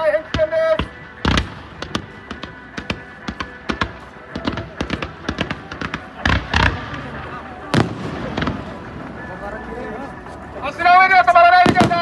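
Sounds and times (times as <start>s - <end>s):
faint music: 0.0s - 12.0s
fireworks cracking and popping: 0.3s - 8.8s.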